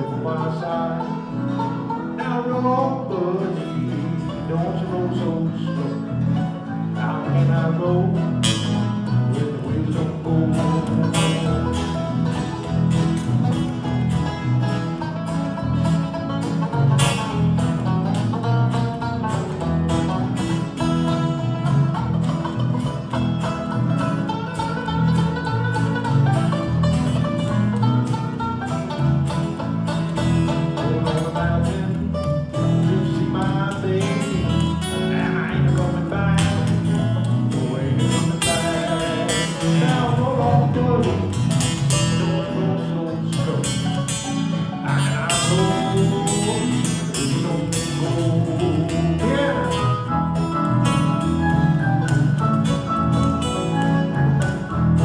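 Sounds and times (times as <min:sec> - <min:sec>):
banjo: 0:00.0 - 0:55.0
picked acoustic guitars: 0:00.0 - 0:55.0
upright bass beat: 0:07.4 - 0:55.0.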